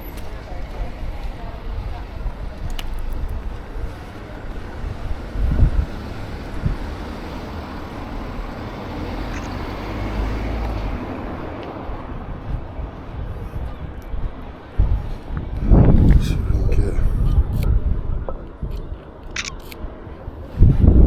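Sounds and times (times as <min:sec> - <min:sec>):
low traffic rumble: 0:00.0 - 0:21.0
vehicle passing: 0:03.9 - 0:13.4.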